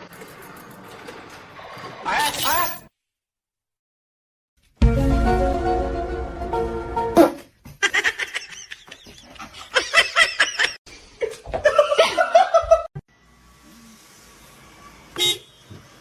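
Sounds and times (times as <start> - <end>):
person laughing: 7.8 - 12.9.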